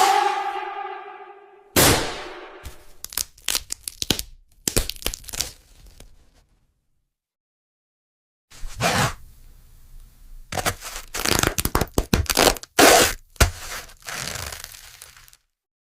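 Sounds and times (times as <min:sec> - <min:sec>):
loud sharp cracking: 0:01.8 - 0:03.3.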